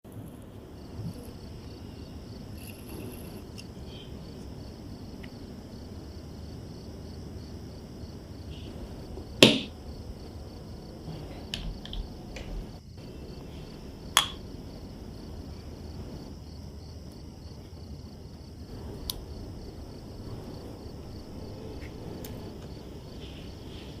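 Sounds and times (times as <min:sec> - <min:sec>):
high-pitched insect chirring: 0:00.8 - 0:05.8.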